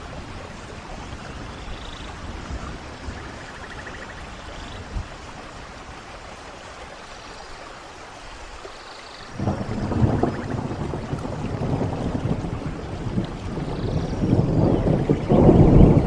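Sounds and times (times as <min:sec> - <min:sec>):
steady rain hiss: 0:00.0 - 0:16.0
thunder rumbling: 0:09.3 - 0:16.0.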